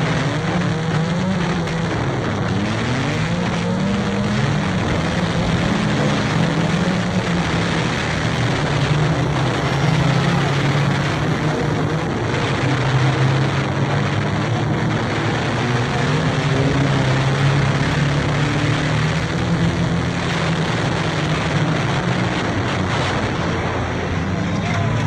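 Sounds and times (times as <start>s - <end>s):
race car engine droning: 0.0s - 25.0s
mechanical and track noise: 1.6s - 15.9s.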